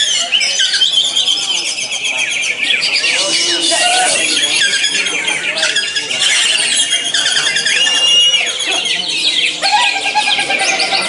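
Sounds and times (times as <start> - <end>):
many songbirds singing: 0.0 - 11.0
held high bird whistle: 3.4 - 9.0.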